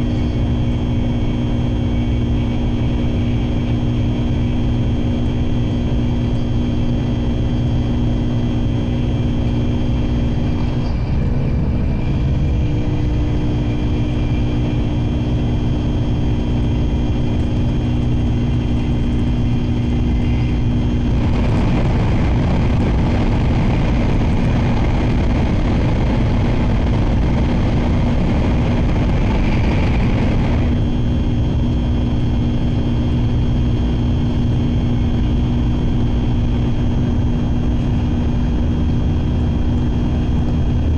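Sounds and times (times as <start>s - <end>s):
train interior low rumble: 0.0s - 40.9s
steady tones: 9.6s - 31.0s
loud rushing noise: 9.9s - 31.3s.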